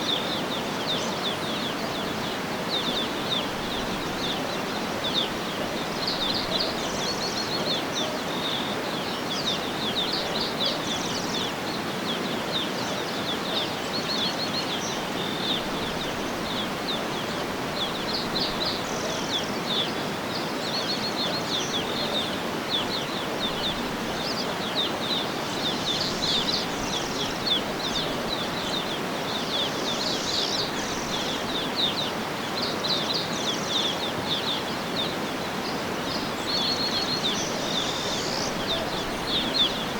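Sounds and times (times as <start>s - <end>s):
birds chirping and twittering: 0.0s - 39.9s
outdoor background hiss: 0.0s - 39.9s.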